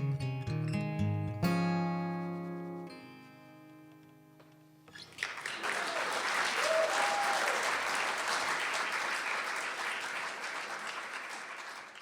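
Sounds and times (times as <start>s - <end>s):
audience applauding: 4.9s - 12.0s
crowd whooping: 5.4s - 9.2s.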